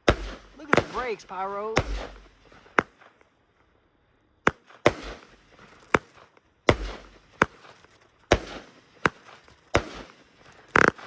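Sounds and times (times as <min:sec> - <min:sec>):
firework rumble: 0:00.0 - 0:03.0
firework bangs: 0:00.0 - 0:03.2, 0:04.4 - 0:11.0.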